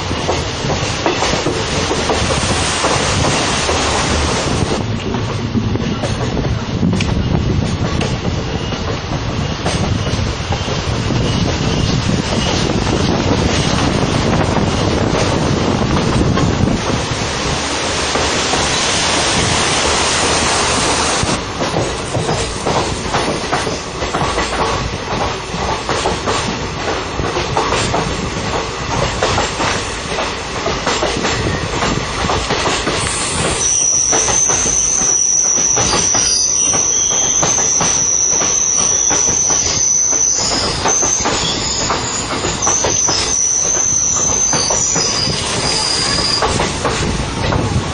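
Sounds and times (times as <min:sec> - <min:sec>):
train carriages clattering over rails: 0:00.0 - 0:47.9
high-pitched wheel squeal: 0:33.1 - 0:46.6.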